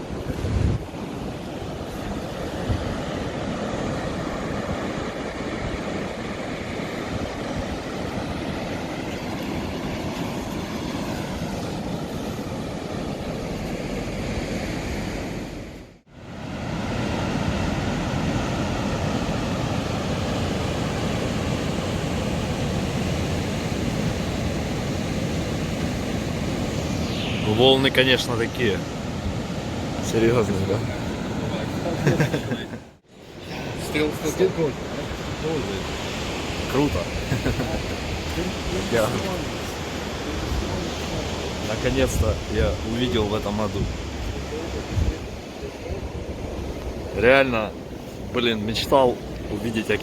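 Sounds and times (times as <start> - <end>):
surf waves breaking on beach: 0.0 - 50.0.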